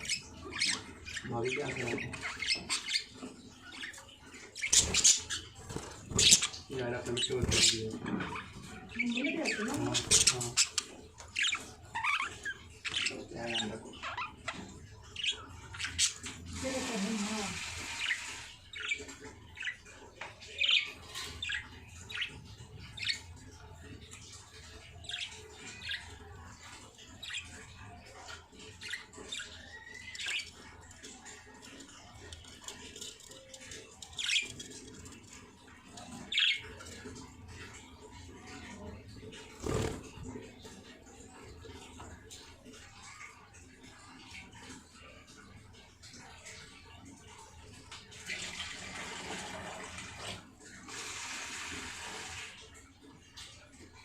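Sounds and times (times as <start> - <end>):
baby birds squeaky calls: 0.0 - 17.0
water running: 0.0 - 54.0.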